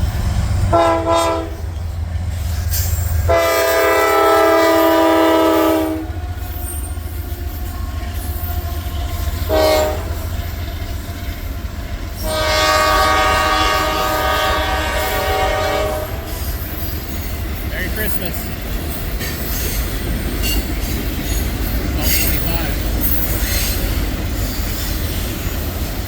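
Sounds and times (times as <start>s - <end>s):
passing train rumble: 0.0s - 26.0s
locomotive air horn blasts: 0.7s - 1.7s, 3.3s - 6.1s, 9.4s - 10.2s, 12.2s - 16.3s.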